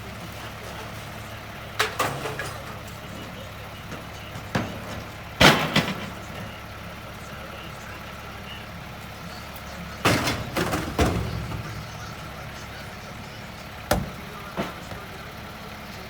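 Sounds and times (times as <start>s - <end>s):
garbage truck running: 0.0s - 16.0s
metal clanks and bangs: 0.5s - 6.8s, 9.6s - 15.7s.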